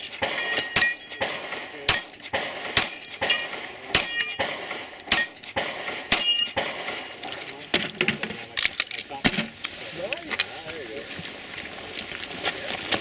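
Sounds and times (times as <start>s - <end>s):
gunshots: 0.0s - 7.2s
steel target clanging: 0.0s - 7.2s.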